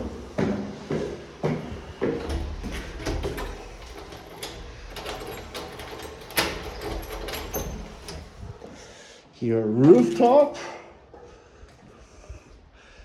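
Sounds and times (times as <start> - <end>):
footsteps: 0.0 - 4.6, 8.2 - 8.9.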